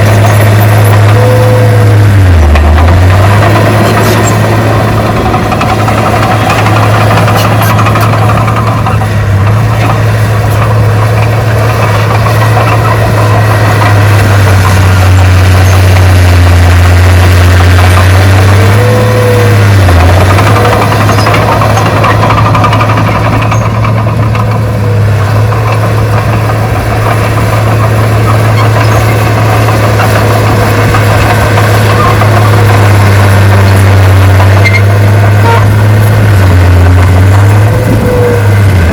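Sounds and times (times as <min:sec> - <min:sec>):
heavy diesel engine droning: 0:00.0 - 0:38.9.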